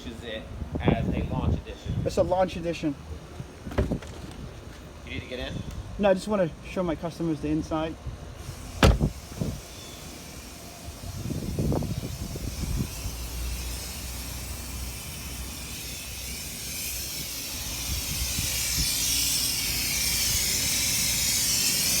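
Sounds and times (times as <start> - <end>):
car wash equipment hissing: 8.4 - 22.0.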